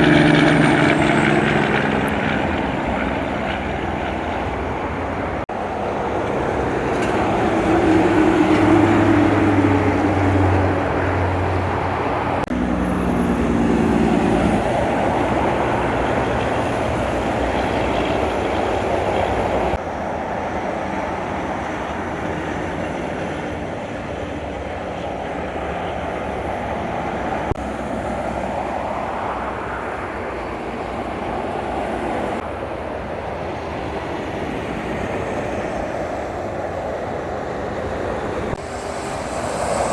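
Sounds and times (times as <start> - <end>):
heavy trucks driving past: 0.0 - 39.9.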